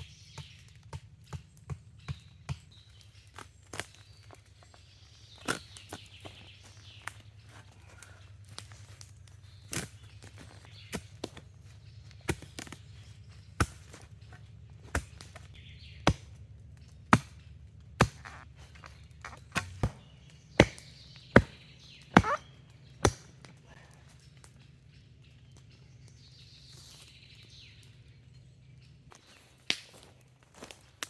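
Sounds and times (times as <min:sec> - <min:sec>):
axe chopping wood: 0:13.5 - 0:14.1, 0:14.8 - 0:16.4, 0:17.1 - 0:17.4, 0:18.0 - 0:23.5.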